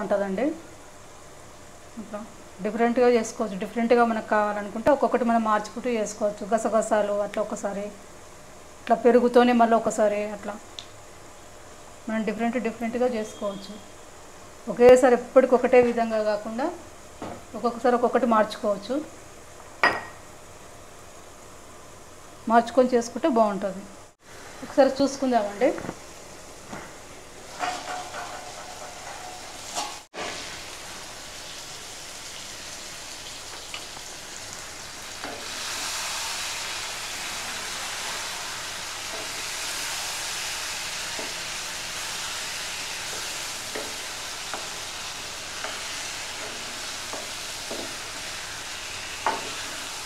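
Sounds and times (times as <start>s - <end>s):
chicken sizzling in a pan: 27.4s - 50.0s
spatula scraping and tapping pan: 27.5s - 30.4s, 43.0s - 44.9s, 45.5s - 48.1s.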